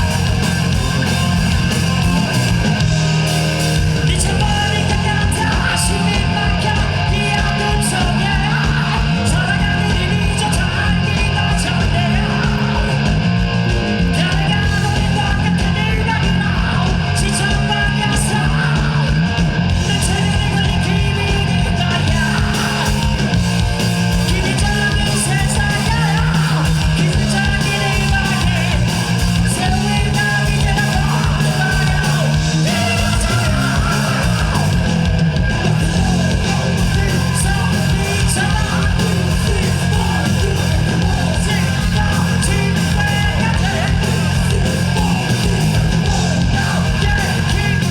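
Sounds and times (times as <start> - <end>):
live rock band: 0.0 - 47.9
person singing: 4.0 - 13.3, 24.2 - 34.8, 35.7 - 47.9.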